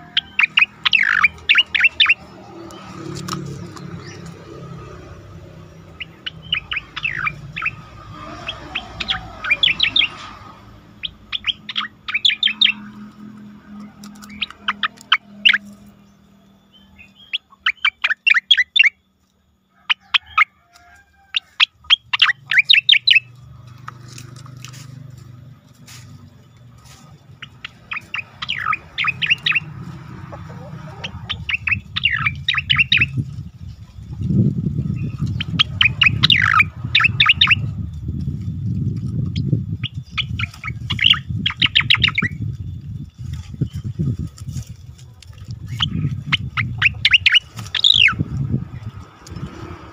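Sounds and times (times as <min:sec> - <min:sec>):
bird singing whistled notes: 0:00.0 - 0:03.0, 0:05.8 - 0:10.2, 0:10.9 - 0:13.1, 0:13.7 - 0:19.1, 0:21.6 - 0:23.3, 0:26.0 - 0:29.7, 0:31.3 - 0:44.2, 0:45.6 - 0:48.3.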